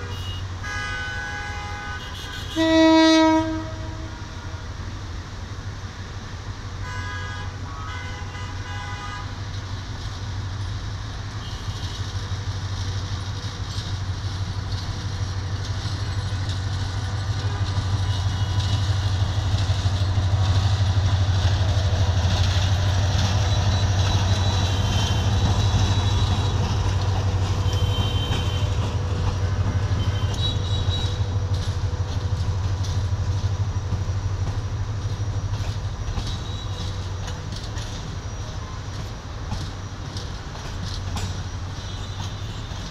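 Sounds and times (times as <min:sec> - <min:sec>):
train horn blast: 0:00.0 - 0:04.8, 0:06.8 - 0:09.4, 0:17.4 - 0:19.1, 0:23.5 - 0:31.6
diesel locomotive engine drone: 0:00.0 - 0:42.9.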